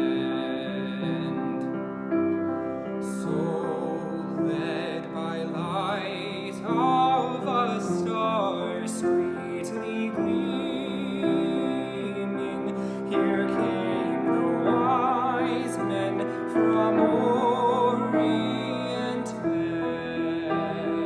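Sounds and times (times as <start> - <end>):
classical singing with vibrato: 0.0 - 21.0
piano accompaniment: 0.0 - 21.0.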